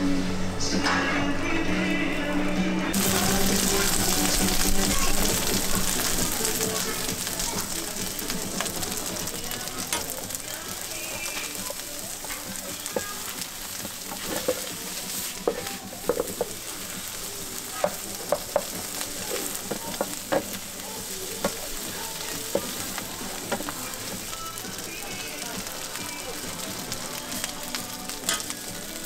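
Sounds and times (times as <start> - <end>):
food sizzling in a frying pan: 2.9 - 29.0
wooden spatula scraping pan: 11.0 - 24.2.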